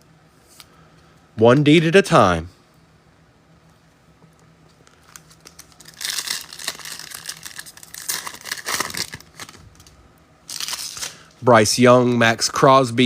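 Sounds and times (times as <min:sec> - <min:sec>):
wrapper being torn and crinkled: 0:04.9 - 0:11.4.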